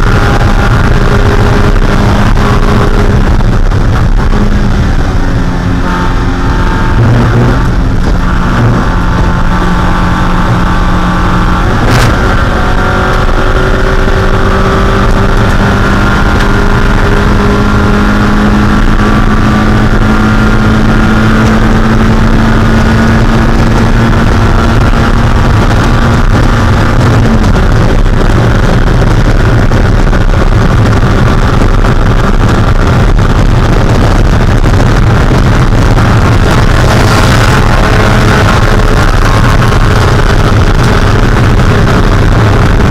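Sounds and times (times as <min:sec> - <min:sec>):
race engine at high revs: 0:00.0 - 0:42.9.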